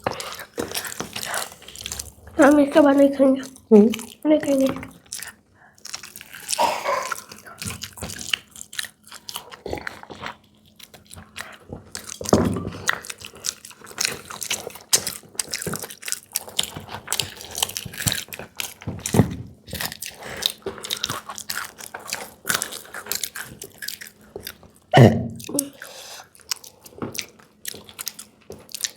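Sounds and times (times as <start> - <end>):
chewing with crunches: 0.0 - 28.9.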